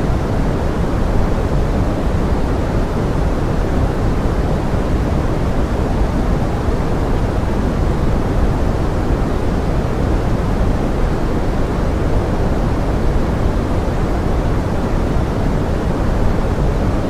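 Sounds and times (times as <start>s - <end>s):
pink noise hiss: 0.0s - 17.0s.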